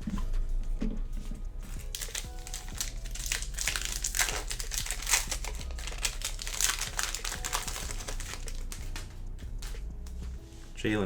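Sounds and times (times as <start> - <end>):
wrapper tearing and crinkling: 1.7 - 9.8.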